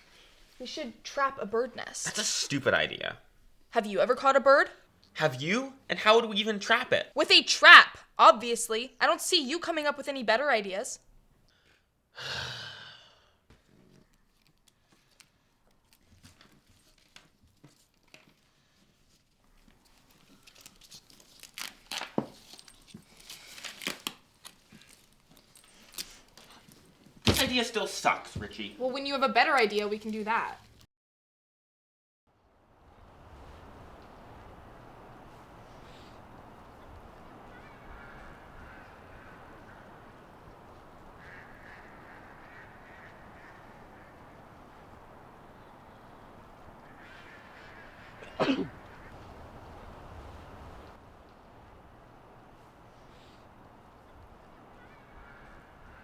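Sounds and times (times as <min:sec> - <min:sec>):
steady background hiss: 0:00.0 - 0:11.0, 0:25.6 - 0:30.8, 0:32.4 - 0:56.0
rustling and tearing handling noises: 0:13.6 - 0:28.5
birds calling: 0:25.5 - 0:30.8, 0:32.8 - 0:56.0.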